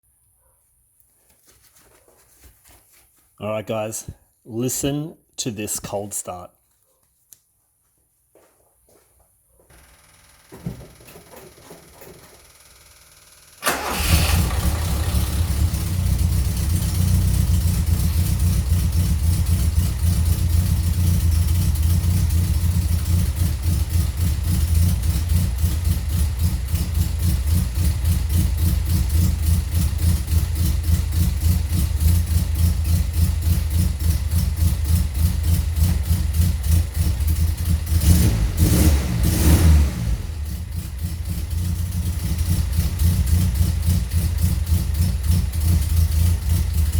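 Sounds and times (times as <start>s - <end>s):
car engine starting and idling: 9.7s - 46.9s.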